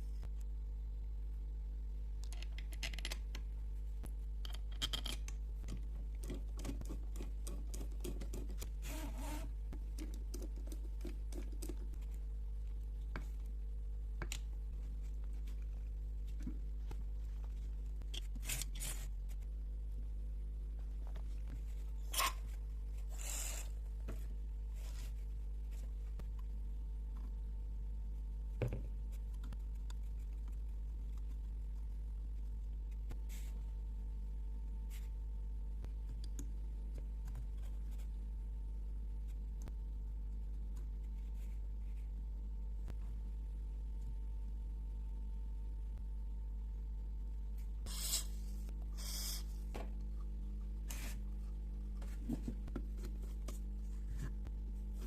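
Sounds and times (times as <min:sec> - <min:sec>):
steady low hum: 0:00.0 - 0:55.0
small parts and tools clicking: 0:02.2 - 0:03.4, 0:04.4 - 0:08.7.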